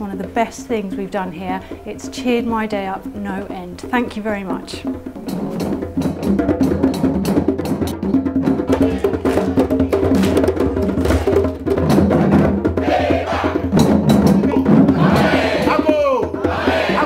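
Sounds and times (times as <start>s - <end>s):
group playing drums and percussion: 0.0s - 17.0s.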